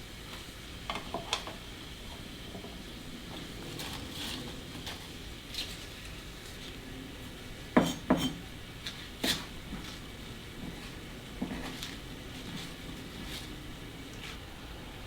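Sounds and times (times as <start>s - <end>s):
dishes and cutlery clinking: 7.8s - 8.5s.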